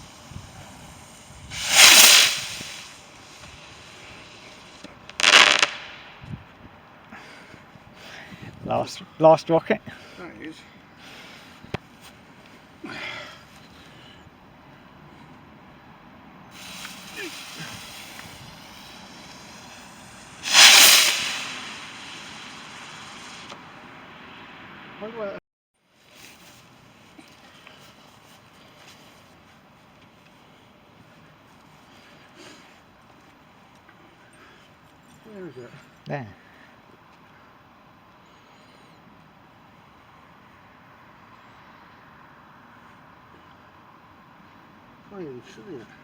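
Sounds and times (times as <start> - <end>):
fireworks bursting: 0.0 - 6.3, 16.6 - 24.6.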